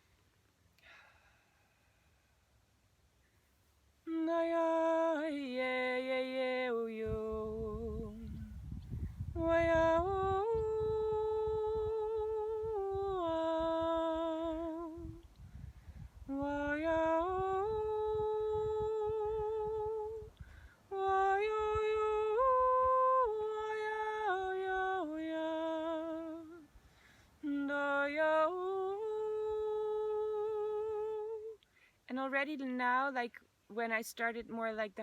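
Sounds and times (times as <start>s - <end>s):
woman humming a melody: 4.1s - 15.5s, 16.2s - 26.6s, 27.4s - 31.6s.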